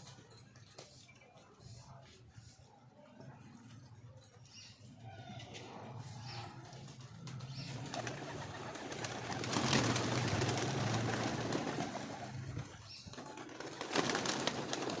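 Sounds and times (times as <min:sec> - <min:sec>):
wings flapping: 0:07.0 - 0:15.0.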